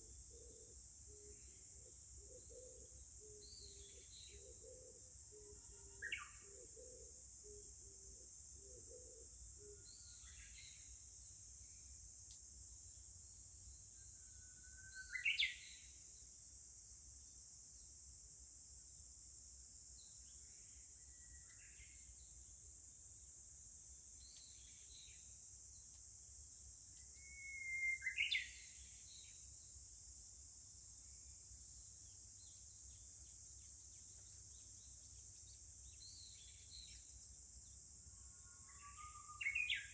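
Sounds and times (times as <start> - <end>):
bush warblers singing: 39.0 - 39.9.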